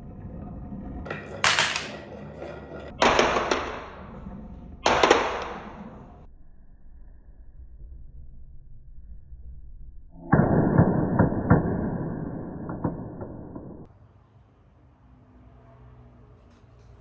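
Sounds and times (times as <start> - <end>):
marble rolling: 0.5 - 6.3
marbles clattering on wooden run: 1.1 - 3.9.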